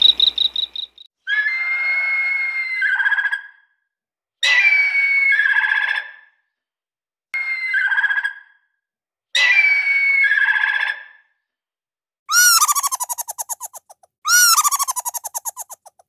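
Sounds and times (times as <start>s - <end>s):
eagle calling: 0.0s - 1.0s, 12.3s - 15.9s
squirrel chattering: 12.3s - 16.0s.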